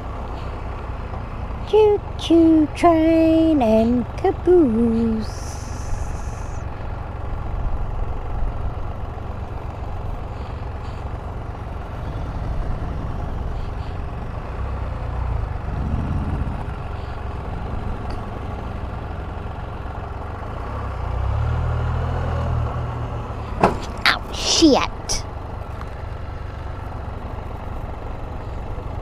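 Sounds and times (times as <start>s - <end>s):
motorcycle engine running: 0.0s - 20.7s.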